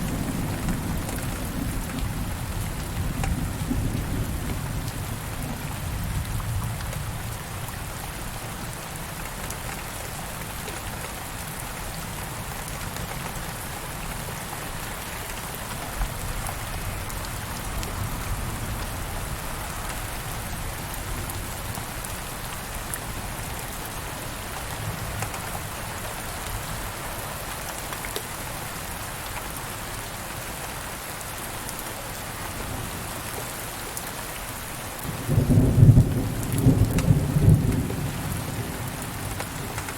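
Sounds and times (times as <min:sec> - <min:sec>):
steady rain pattering: 0:00.0 - 0:39.9
distant thunder rumble: 0:35.1 - 0:39.9.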